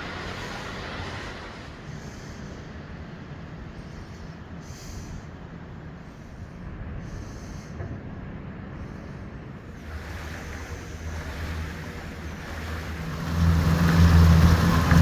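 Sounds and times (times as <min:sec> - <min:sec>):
boat engine humming: 0:08.8 - 0:15.0
rushing water: 0:09.7 - 0:15.0.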